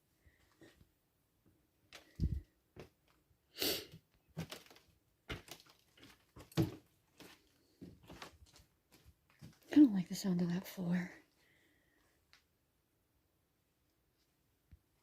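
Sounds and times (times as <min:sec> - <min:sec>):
footsteps on old floor: 0:04.4 - 0:10.0.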